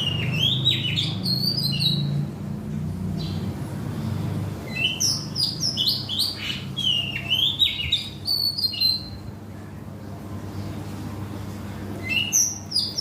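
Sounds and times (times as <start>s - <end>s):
songbird chirping: 0.0s - 2.3s, 4.6s - 9.4s, 11.8s - 13.0s
low steady hum: 6.0s - 13.0s.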